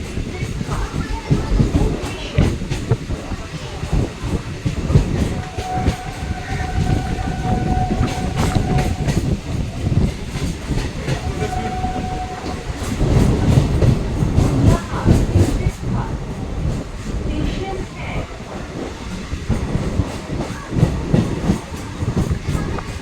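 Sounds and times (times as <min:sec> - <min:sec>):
train rumbling: 0:00.0 - 0:23.0
train horn: 0:05.1 - 0:09.8, 0:11.0 - 0:13.6.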